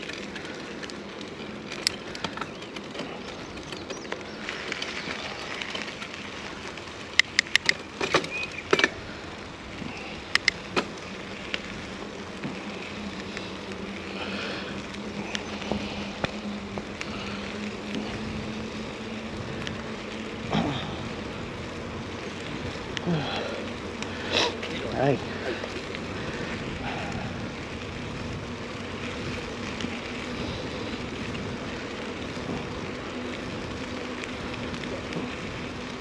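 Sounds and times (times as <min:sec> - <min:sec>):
bike clacking: 0:00.0 - 0:36.0
tyre and wind noise: 0:00.0 - 0:36.0.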